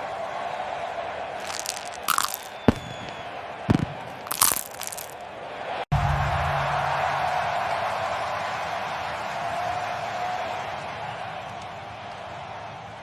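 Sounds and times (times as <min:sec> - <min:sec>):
beak crunching popcorn: 0:01.4 - 0:05.2.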